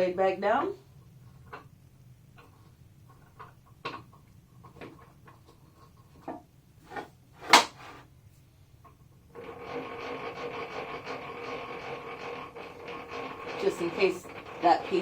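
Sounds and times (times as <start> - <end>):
knocks and clicks of handling: 6.9 - 8.0.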